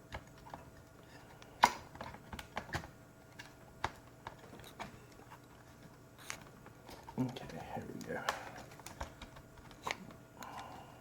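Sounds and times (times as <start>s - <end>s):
clicks and taps of laptop parts: 1.6s - 5.2s, 8.2s - 10.7s.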